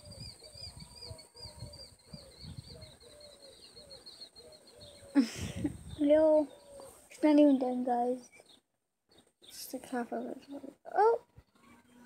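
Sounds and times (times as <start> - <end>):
faint bird chirping: 0.0 - 12.0
low microphone rumble: 5.2 - 6.4.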